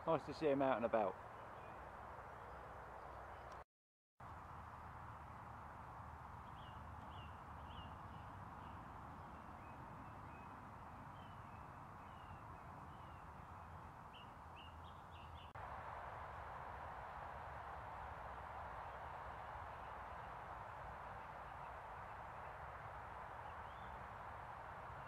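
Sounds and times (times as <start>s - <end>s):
outdoor background noise: 0.0s - 3.6s, 4.2s - 25.0s
birds chirping: 6.4s - 15.6s, 18.6s - 25.0s.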